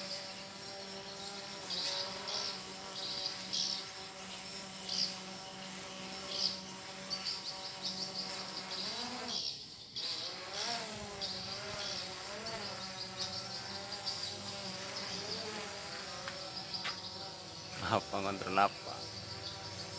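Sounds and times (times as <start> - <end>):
drone propellers buzzing: 0.0 - 19.9
high bird chirps: 11.2 - 19.9.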